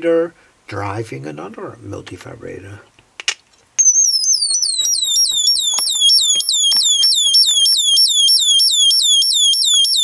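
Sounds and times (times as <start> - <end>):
electronic bird chirps: 3.8 - 10.0.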